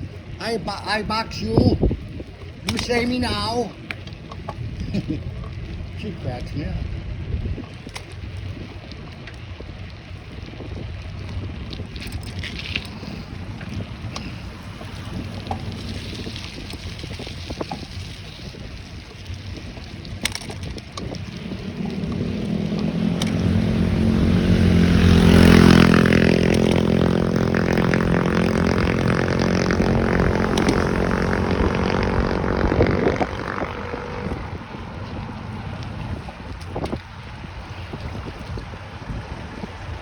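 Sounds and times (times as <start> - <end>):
wind buffeting microphone: 0.0 - 40.0
vehicle passing by: 21.2 - 36.6.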